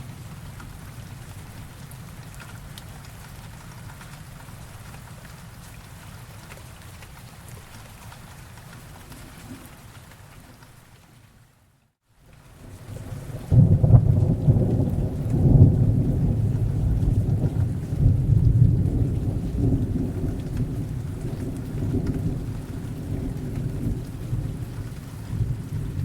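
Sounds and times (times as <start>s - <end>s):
steady rain: 0.0s - 26.0s
thunder rumbling: 12.9s - 26.0s.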